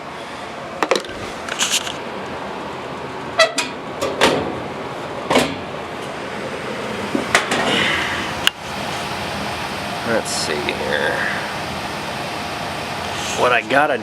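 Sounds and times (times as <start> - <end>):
furnace blower rushing: 4.6 - 14.0.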